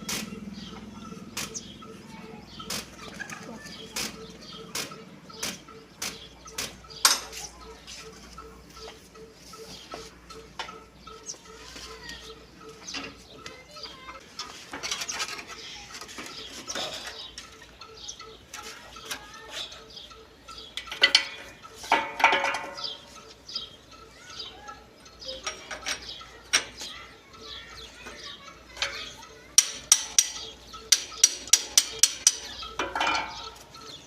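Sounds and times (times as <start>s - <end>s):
metal tools clinking: 9.5s - 24.4s, 25.1s - 34.0s.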